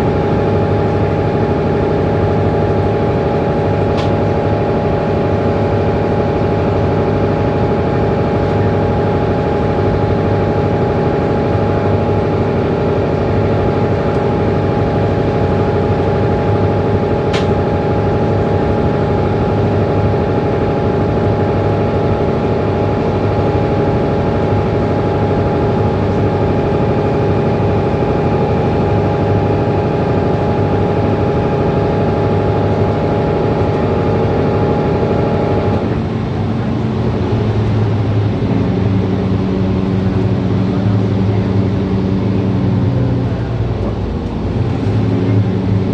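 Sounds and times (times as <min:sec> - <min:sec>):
bus engine running: 0:00.0 - 0:45.9
brief click: 0:17.3 - 0:17.5.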